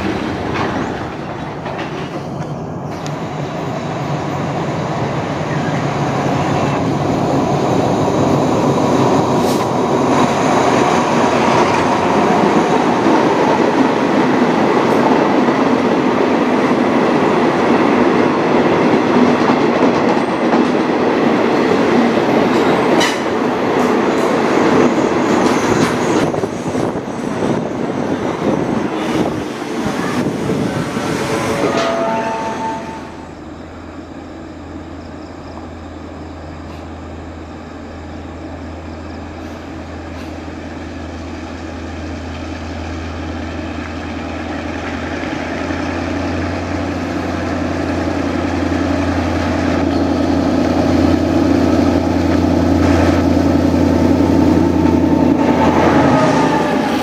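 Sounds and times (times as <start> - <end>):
train wheels clattering over rail joints: 0.0 - 3.2, 22.0 - 27.6
diesel locomotive engine drone: 0.0 - 57.0.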